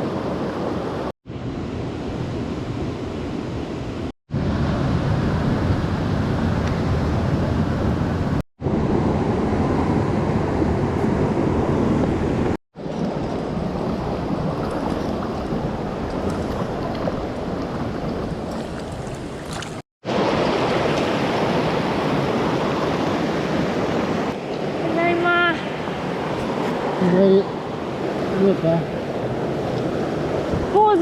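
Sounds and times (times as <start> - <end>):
mountain stream rushing: 11.2 - 31.0.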